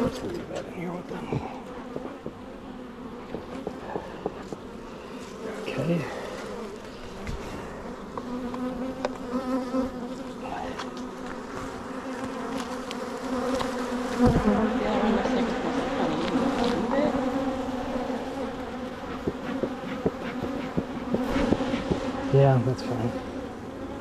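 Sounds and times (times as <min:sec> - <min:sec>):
bees buzzing: 0:00.0 - 0:24.0.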